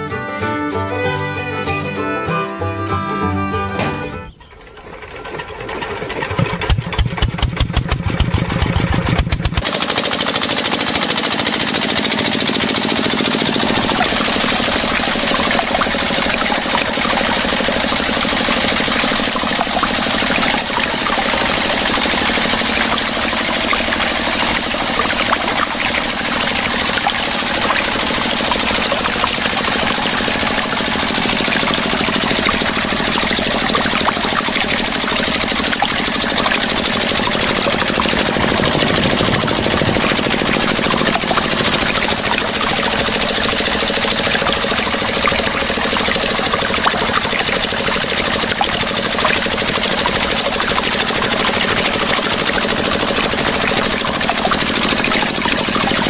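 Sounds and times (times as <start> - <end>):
engine starting and running: 0.0 - 56.0.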